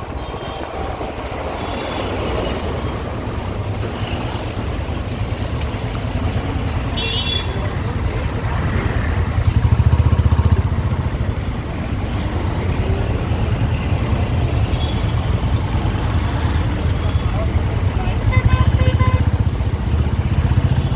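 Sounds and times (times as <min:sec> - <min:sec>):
motorcycle engine rumbling: 0:00.0 - 0:20.9
vehicle horn toot: 0:18.2 - 0:19.4.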